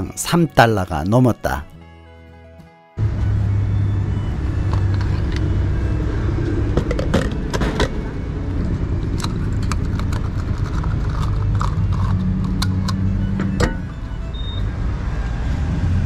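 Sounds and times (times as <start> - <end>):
car engine running: 3.0 - 16.0
sharp clicks and knocks: 8.6 - 13.9.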